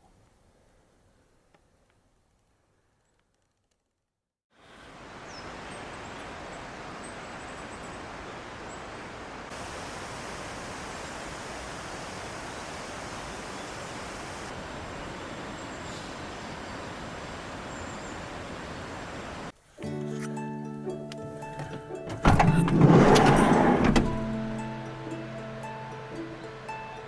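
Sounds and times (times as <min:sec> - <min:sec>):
water rushing: 0:04.6 - 0:19.5, 0:21.5 - 0:27.0.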